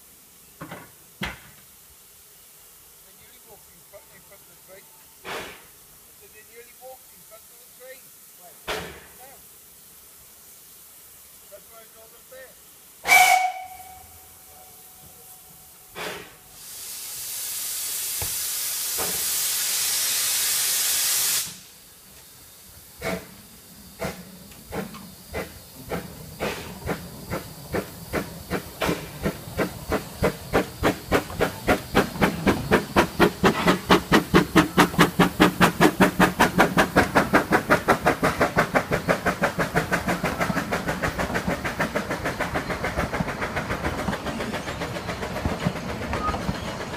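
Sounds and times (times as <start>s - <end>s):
steam hissing: 0.0s - 46.9s
steam locomotive whistle: 13.0s - 15.2s
locomotive exhaust chuffs: 13.0s - 46.9s.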